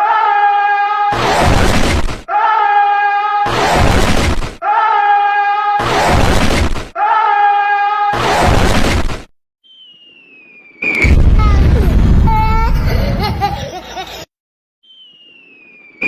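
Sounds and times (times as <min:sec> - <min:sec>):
cartoon crash burst: 0:01.2 - 0:02.2, 0:03.5 - 0:04.6, 0:05.8 - 0:06.9, 0:08.2 - 0:09.3, 0:11.0 - 0:12.9.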